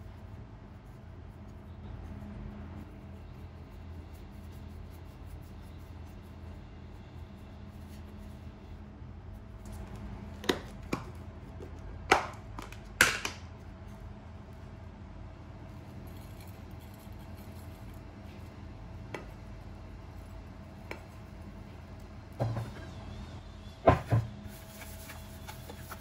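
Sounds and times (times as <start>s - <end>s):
steady low hum: 0.0s - 26.0s
dishes knocking on countertop: 23.9s - 24.3s.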